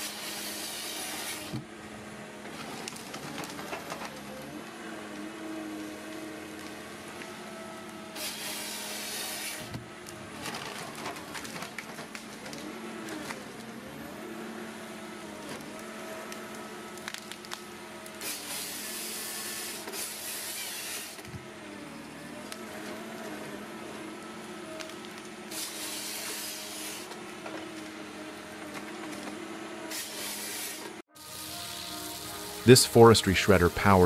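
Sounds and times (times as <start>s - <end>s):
heavy machine engine running: 0.0s - 34.0s.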